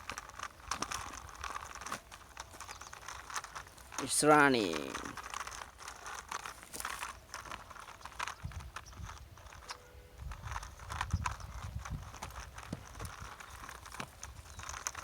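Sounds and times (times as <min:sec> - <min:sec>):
plastic toy truck clicks and knocks: 0:00.0 - 0:15.0.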